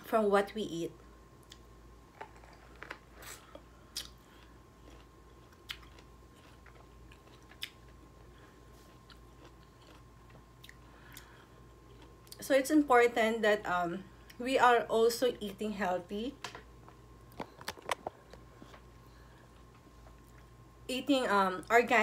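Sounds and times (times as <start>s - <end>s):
person chewing lemon crunches: 1.4s - 12.4s.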